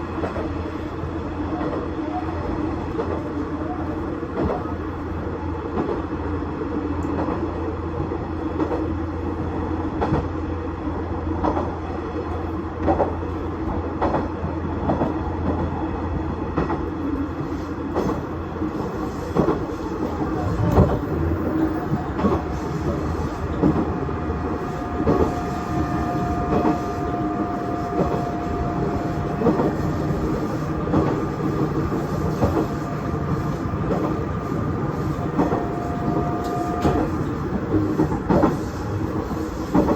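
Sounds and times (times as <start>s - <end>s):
train wheels clicking over rail joints: 17.9s - 39.9s
diesel engine hum: 20.1s - 37.6s
thin steady whine: 20.4s - 37.0s.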